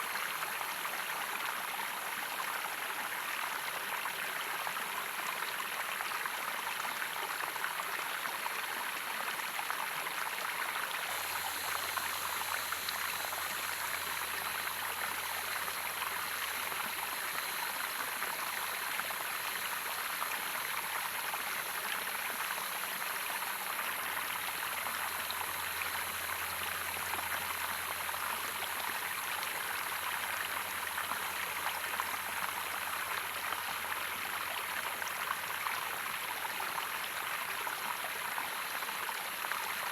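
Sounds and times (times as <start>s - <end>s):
stream water rushing: 9.8s - 39.9s.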